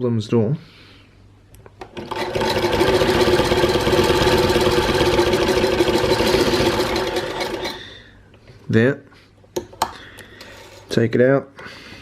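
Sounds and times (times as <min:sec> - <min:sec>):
sewing machine stitching: 0:01.8 - 0:07.8.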